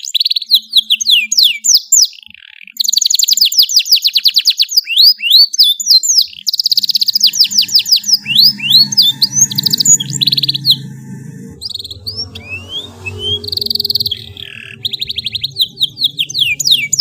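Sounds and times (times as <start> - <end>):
canary singing: 4.8 - 17.0.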